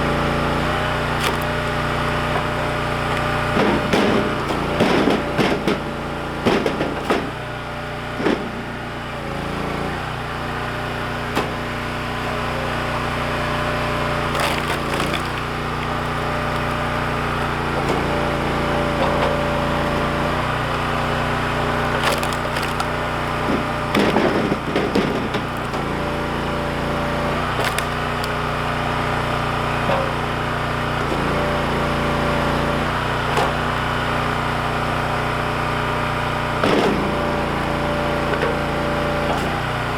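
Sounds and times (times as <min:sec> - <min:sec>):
log splitter engine running: 0:00.0 - 0:39.9
wood cracking and splintering: 0:00.2 - 0:05.6, 0:11.2 - 0:29.8.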